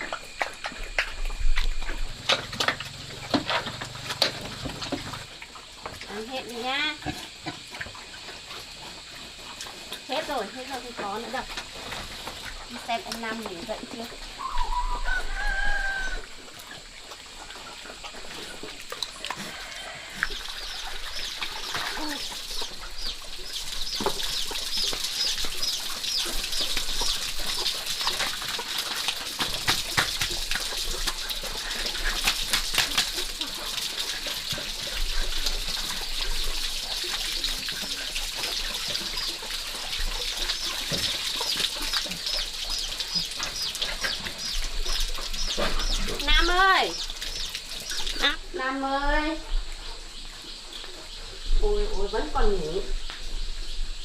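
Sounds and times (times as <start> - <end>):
chickens clucking: 38.0 - 48.4.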